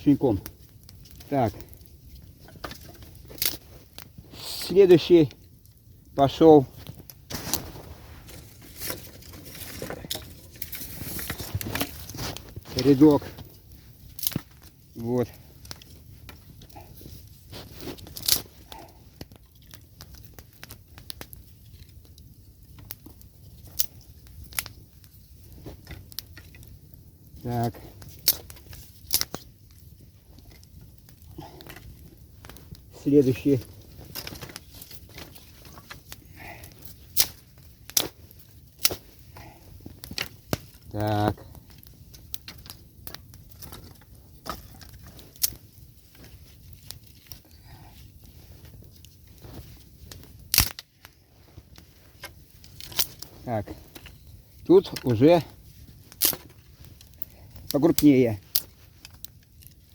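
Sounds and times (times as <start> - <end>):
wooden sticks clicking and knocking: 27.4 - 59.9.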